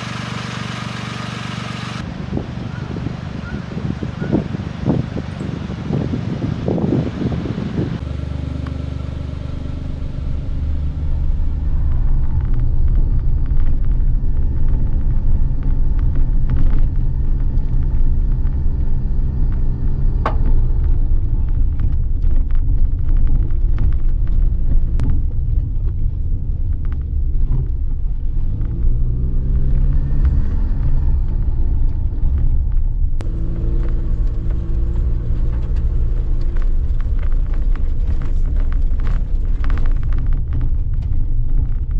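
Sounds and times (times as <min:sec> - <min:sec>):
small car engine running: 0:00.0 - 0:22.3, 0:28.1 - 0:41.8.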